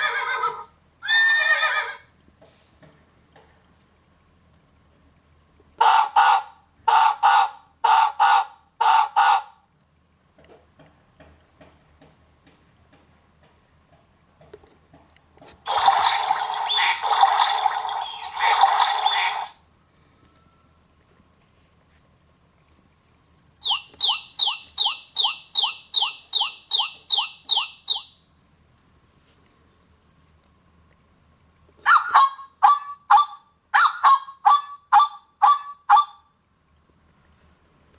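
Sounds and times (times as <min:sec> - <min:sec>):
high-pitched animal call: 0:00.0 - 0:02.1, 0:15.7 - 0:19.6, 0:23.6 - 0:28.2, 0:31.9 - 0:36.2
bird squawking: 0:15.7 - 0:19.6, 0:23.6 - 0:28.2, 0:31.9 - 0:36.2.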